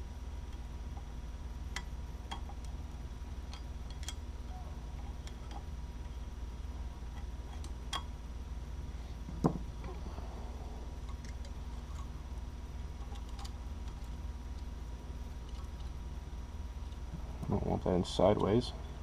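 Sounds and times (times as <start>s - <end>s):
steady low hum: 0.0s - 19.0s
dull knock: 9.4s - 9.6s.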